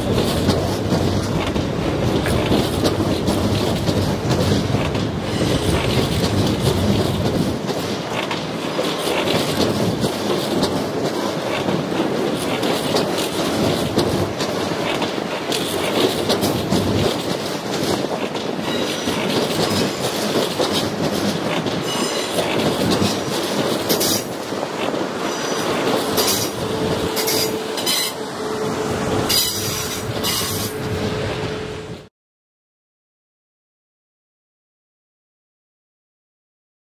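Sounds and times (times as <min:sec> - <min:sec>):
train rumbling over rails: 0:00.0 - 0:32.1
high-pitched wheel squeals: 0:27.2 - 0:28.3, 0:29.3 - 0:30.8.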